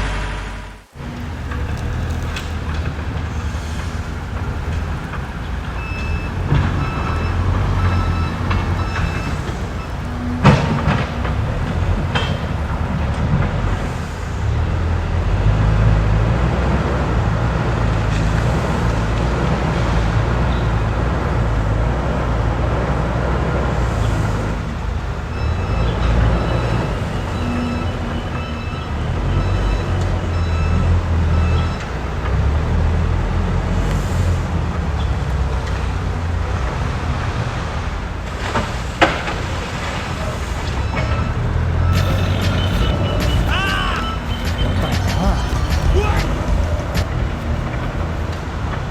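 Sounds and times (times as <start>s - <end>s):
excavator diesel engine rumbling: 0.0s - 38.7s, 39.3s - 48.9s.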